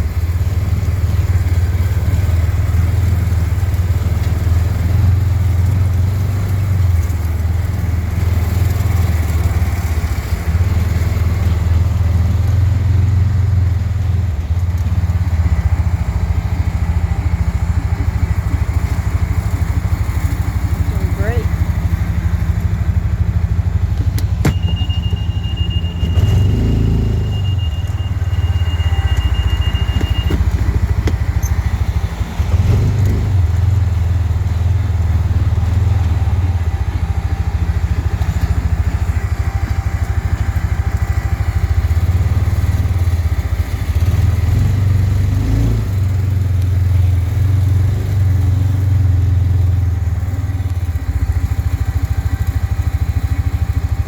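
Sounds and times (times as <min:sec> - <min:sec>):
utility vehicle engine running: 0:00.0 - 0:54.0
thin high beep: 0:24.5 - 0:30.4.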